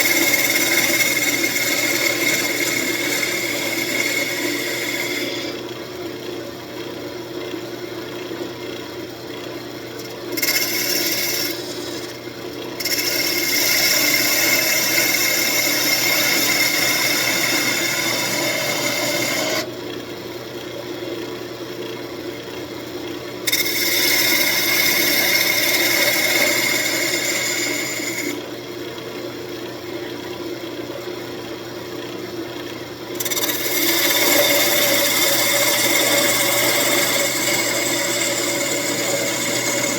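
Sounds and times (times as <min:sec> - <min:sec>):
turning tool cutting wood: 0:00.0 - 0:06.0, 0:09.9 - 0:19.7, 0:23.4 - 0:28.5, 0:32.8 - 0:39.9
wood lathe humming: 0:00.0 - 0:06.2, 0:09.9 - 0:19.7, 0:23.4 - 0:28.5, 0:32.8 - 0:39.9.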